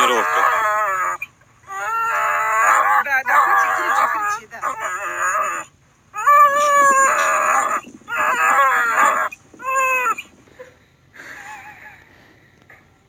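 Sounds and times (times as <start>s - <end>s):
high-pitched screaming cries: 0.0s - 10.3s
faint cry: 0.0s - 12.0s.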